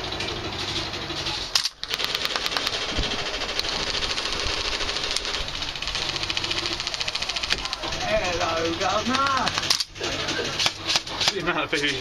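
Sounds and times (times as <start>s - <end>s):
steady hum: 0.0s - 12.0s
airsoft guns firing bursts: 1.7s - 10.0s.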